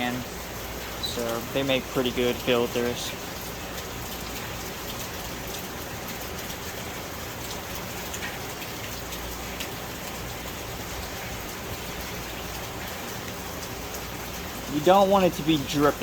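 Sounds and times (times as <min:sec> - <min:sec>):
steady hiss with faint ticks: 0:00.0 - 0:16.0.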